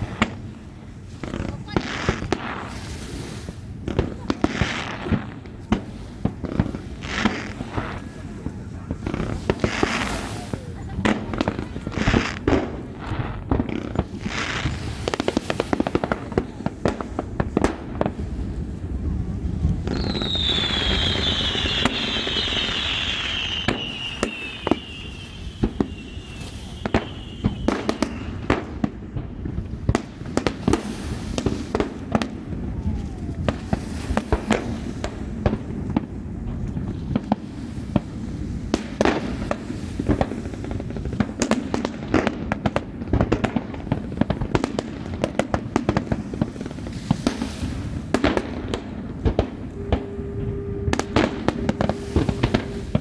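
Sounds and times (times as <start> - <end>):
fireworks bangs and crackles: 0.0 - 53.0
whistling firework shell: 19.8 - 29.0, 32.7 - 34.4, 47.0 - 53.0.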